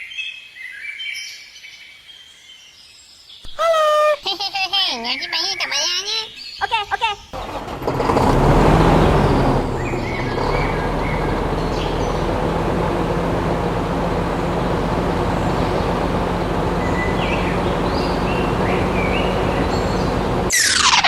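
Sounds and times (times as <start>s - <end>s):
bird chirps: 15.3s - 21.0s.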